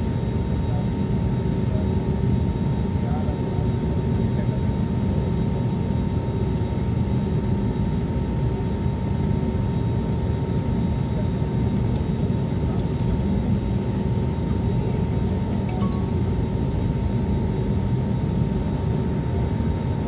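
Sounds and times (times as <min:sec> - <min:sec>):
aircraft cabin rumble: 0:11.1 - 0:19.0.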